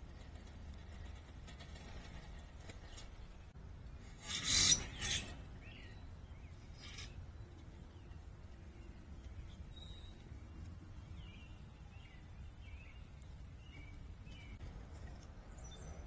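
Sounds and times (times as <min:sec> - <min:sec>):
rasping rustling scrape: 0:04.0 - 0:05.5
faint bird chirp: 0:04.6 - 0:14.6.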